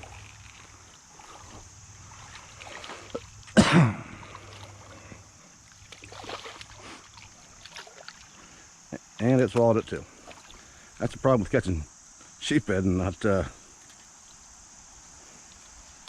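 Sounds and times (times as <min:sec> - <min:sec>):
faint small noises: 0:00.0 - 0:16.0
steady high hiss: 0:00.0 - 0:16.0
person clearing throat: 0:03.6 - 0:04.4.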